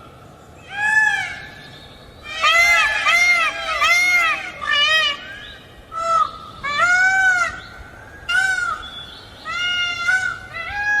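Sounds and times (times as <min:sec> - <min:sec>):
peafowl calling: 0:02.2 - 0:07.6.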